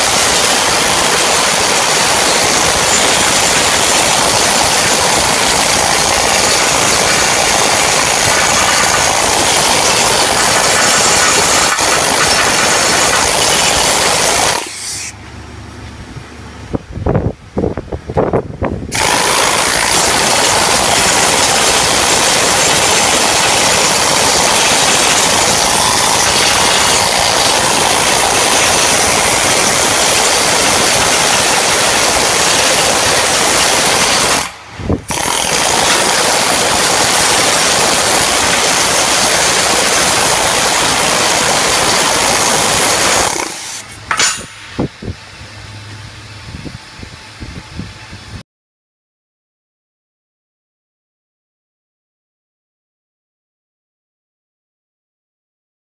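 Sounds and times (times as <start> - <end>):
welding arc crackling hiss: 0.0 - 15.2, 18.9 - 44.9.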